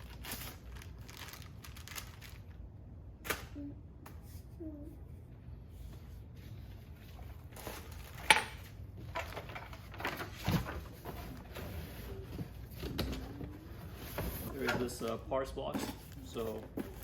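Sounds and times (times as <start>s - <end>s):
packaging rustling: 0.0s - 2.6s.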